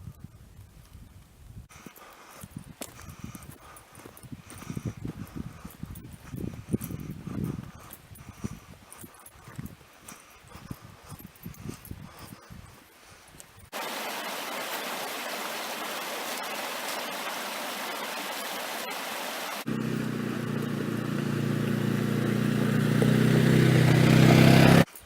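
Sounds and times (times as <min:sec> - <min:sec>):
steady rushing noise: 0:13.8 - 0:22.2
engine hum with low drone: 0:19.6 - 0:24.9.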